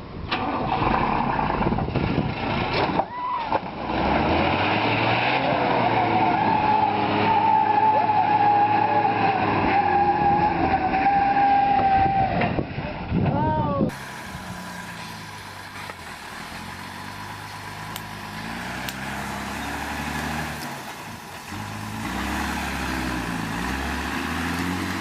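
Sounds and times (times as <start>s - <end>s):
heavy truck engine running hard: 13.9s - 25.0s.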